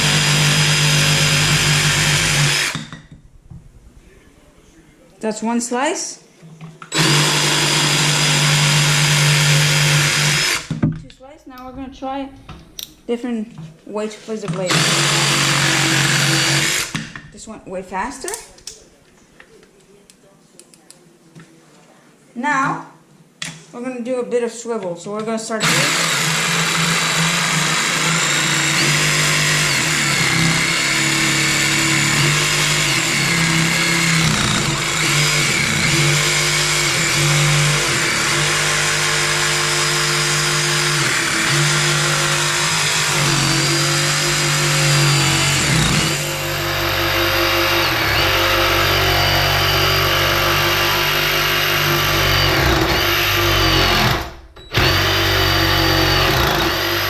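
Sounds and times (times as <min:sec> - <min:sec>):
cordless jigsaw running: 0:00.0 - 0:02.9, 0:06.9 - 0:10.8, 0:14.6 - 0:17.2, 0:25.6 - 0:57.0.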